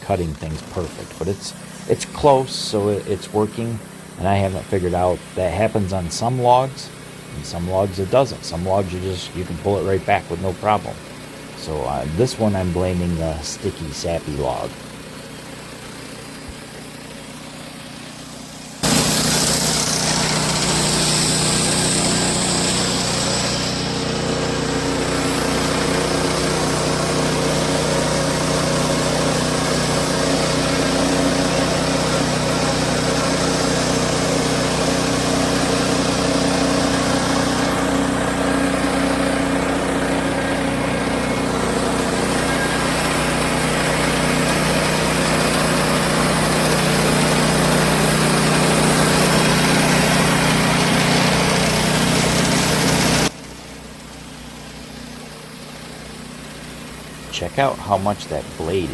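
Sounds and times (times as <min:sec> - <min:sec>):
sawmill engine drone: 0:00.0 - 0:58.9
band blade sawing log: 0:18.8 - 0:53.3.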